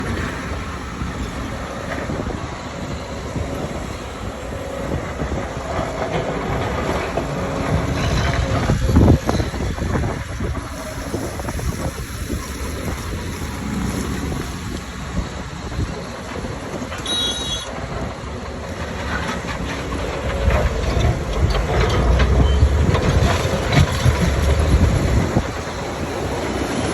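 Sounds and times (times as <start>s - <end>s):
excavator engine and hydraulics: 0.0s - 26.9s
bucket clanking and scraping: 18.9s - 25.9s.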